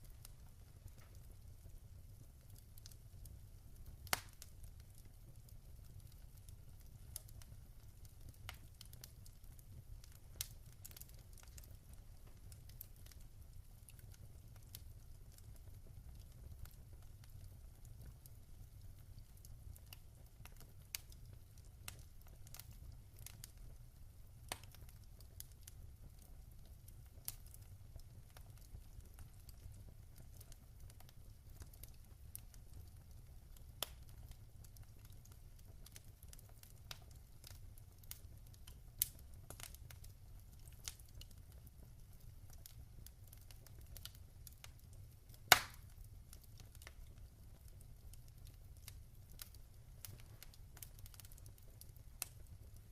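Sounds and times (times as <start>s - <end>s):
low fire rumble: 0.0s - 52.9s
wood fire crackling and popping: 0.0s - 52.9s.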